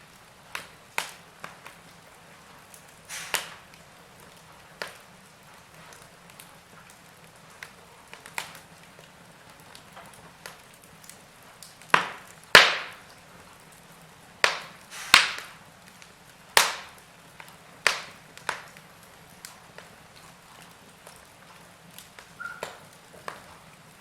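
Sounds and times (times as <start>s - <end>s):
faint hiss: 0.0s - 24.0s
wood logs crackling in fireplace: 0.0s - 24.0s
loud sharp fire pops: 0.5s - 1.9s, 2.7s - 5.0s, 11.6s - 13.2s, 14.4s - 15.6s, 16.5s - 18.8s.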